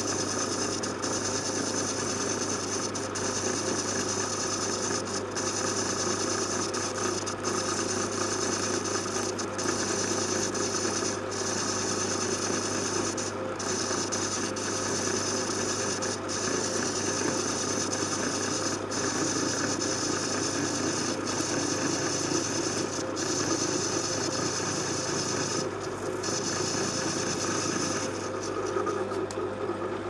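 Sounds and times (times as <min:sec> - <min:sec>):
metal lathe humming: 0:00.0 - 0:29.4
blade rasping through metal: 0:16.3 - 0:29.1.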